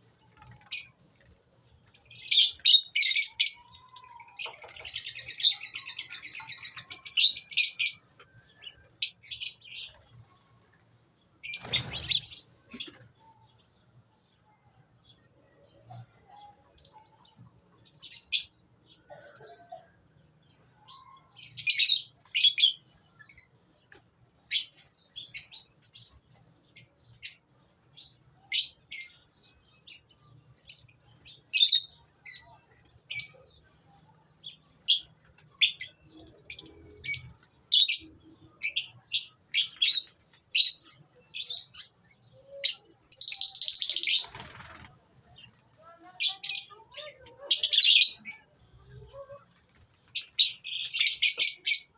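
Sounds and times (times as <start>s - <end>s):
lovebirds chirping: 0.0s - 19.8s, 20.8s - 51.9s.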